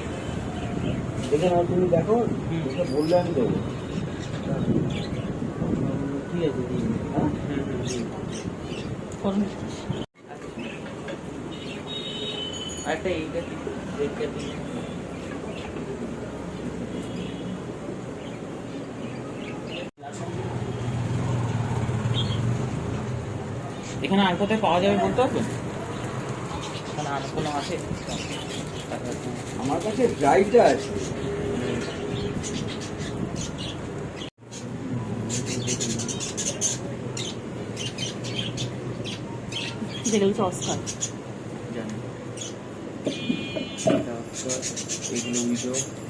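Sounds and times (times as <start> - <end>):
background hubbub: 0.0 - 46.0
small birds chirping: 21.8 - 46.0
steady background murmur: 22.7 - 46.0.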